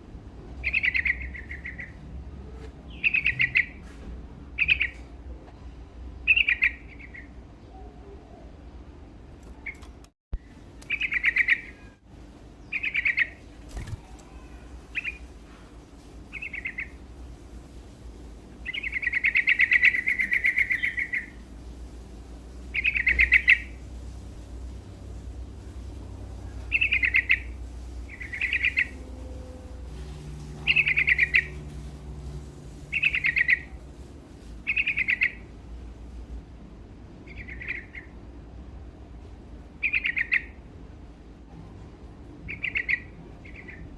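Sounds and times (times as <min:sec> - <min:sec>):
bird singing in chattering phrases: 0:00.6 - 0:03.8, 0:04.6 - 0:05.0, 0:06.2 - 0:08.7, 0:09.5 - 0:12.0, 0:12.6 - 0:15.3, 0:16.3 - 0:17.0, 0:18.6 - 0:21.4, 0:22.7 - 0:23.8, 0:26.3 - 0:29.0, 0:30.5 - 0:31.7, 0:32.9 - 0:33.8, 0:34.6 - 0:35.5, 0:37.2 - 0:38.2, 0:39.8 - 0:40.7, 0:42.5 - 0:43.9.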